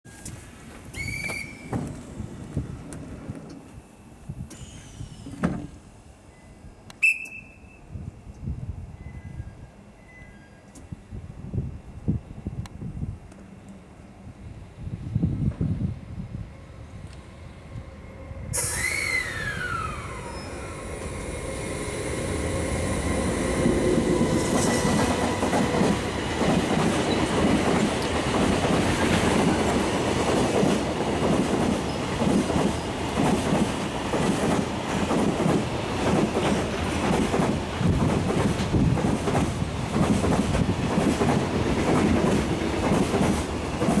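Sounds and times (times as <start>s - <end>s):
train motor whine: 16.2s - 28.1s
train wheels clattering: 23.2s - 44.0s.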